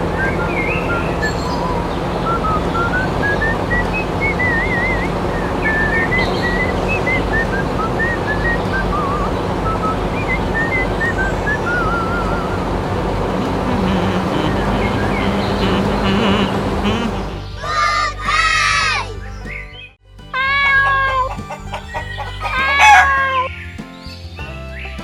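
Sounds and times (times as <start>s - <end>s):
whistled chirps and trills: 0.0s - 18.4s.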